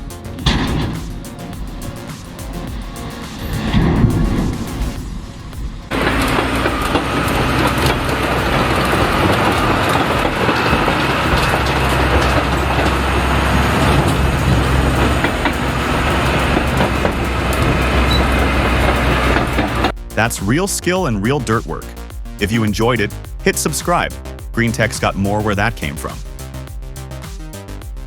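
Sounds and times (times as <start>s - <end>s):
knocks and rattles: 0.0s - 20.0s
diesel engine running hard: 5.9s - 19.9s.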